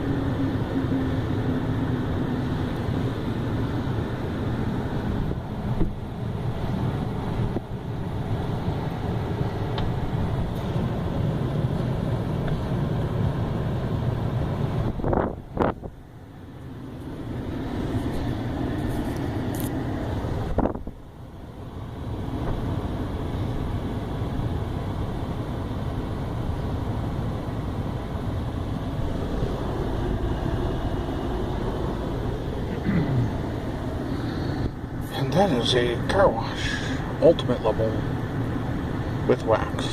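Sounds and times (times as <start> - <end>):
car wash machinery rushing: 24.5 - 39.9.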